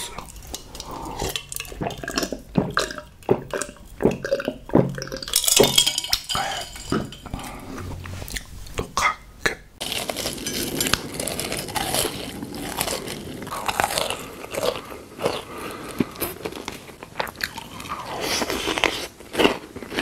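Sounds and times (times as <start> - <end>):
biting and crunching chocolate: 9.8 - 20.0.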